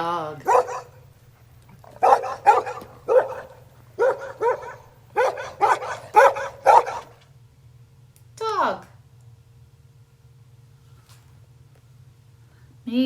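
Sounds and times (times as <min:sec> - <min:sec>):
dog barking: 0:00.4 - 0:01.1, 0:01.8 - 0:07.2.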